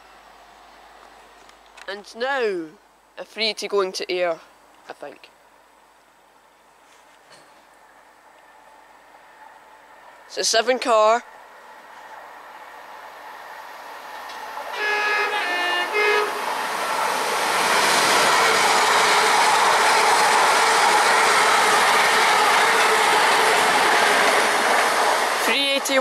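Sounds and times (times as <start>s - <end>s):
train roaring past: 7.8s - 10.5s, 11.2s - 26.0s
two-tone train horn: 14.7s - 16.7s, 18.2s - 20.1s.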